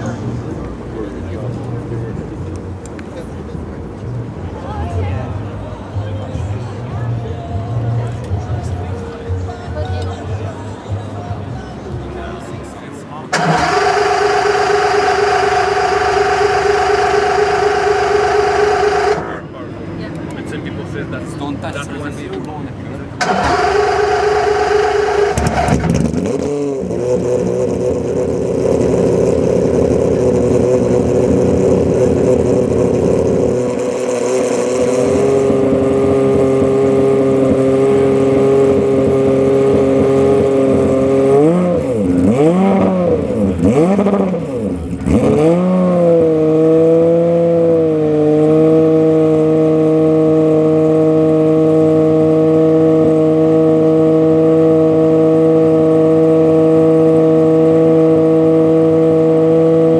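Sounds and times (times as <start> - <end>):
car engine idling: 0.0 - 4.8, 5.4 - 45.1
engine throttle blips: 0.0 - 59.9.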